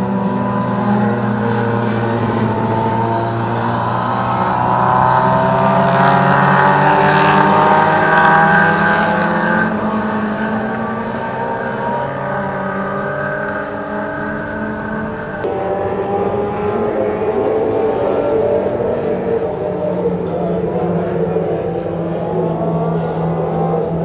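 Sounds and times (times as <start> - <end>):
racing car engine accelerating: 0.0 - 24.0.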